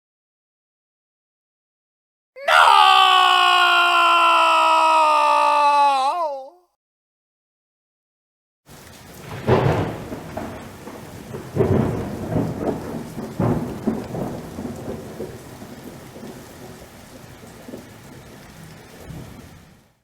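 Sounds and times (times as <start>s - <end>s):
steady rain: 2.5s - 6.4s, 8.7s - 20.0s
thunder cracks and rumble: 8.8s - 19.5s.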